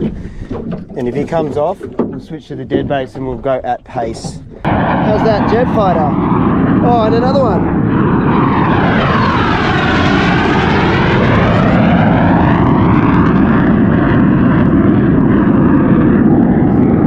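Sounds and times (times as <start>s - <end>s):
fighter jet roaring overhead: 4.6s - 17.0s.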